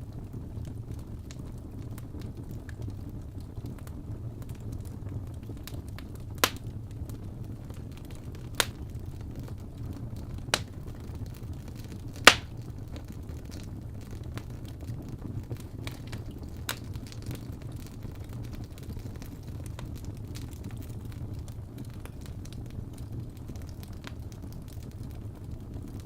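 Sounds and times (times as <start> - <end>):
low fire rumble: 0.0 - 26.0
wood fire crackling: 0.0 - 26.0
sharp pops: 12.3 - 12.5.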